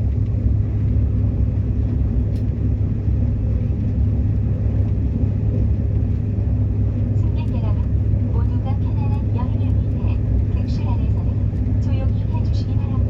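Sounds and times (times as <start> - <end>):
subway train rumbling on track: 0.0 - 13.0.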